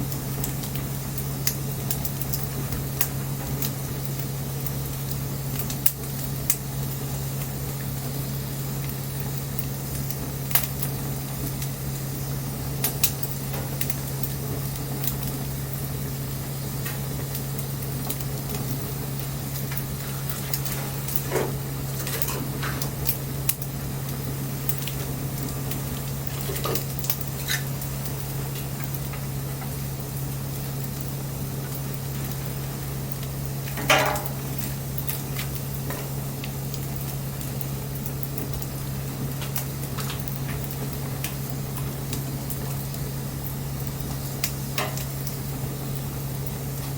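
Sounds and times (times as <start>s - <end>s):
bonfire hissing: 0.0s - 46.9s
fire crackles and pops: 0.0s - 46.9s
steady low hum: 0.0s - 46.9s.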